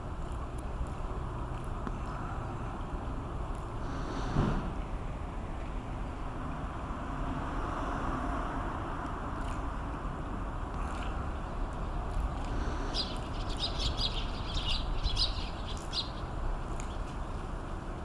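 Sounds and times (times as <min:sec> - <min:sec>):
bird chirping: 0:12.7 - 0:17.4.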